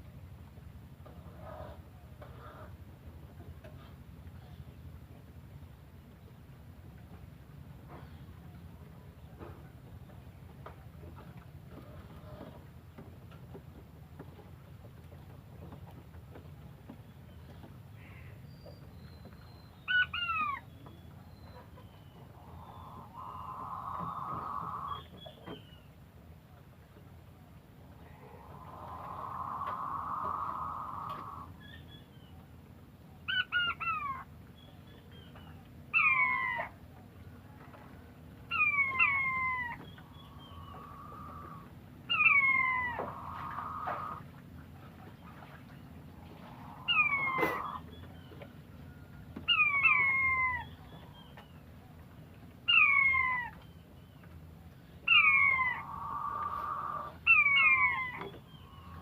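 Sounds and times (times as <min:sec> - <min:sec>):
distant bird chirps: 0:15.6 - 0:26.0, 0:27.8 - 0:32.5, 0:33.2 - 0:59.0
quail calling: 0:19.9 - 0:20.7, 0:21.5 - 0:25.6, 0:28.0 - 0:31.9, 0:33.2 - 0:34.3, 0:35.9 - 0:36.8, 0:38.5 - 0:44.3, 0:46.2 - 0:48.3, 0:49.4 - 0:51.5, 0:52.6 - 0:53.6, 0:55.0 - 0:59.0.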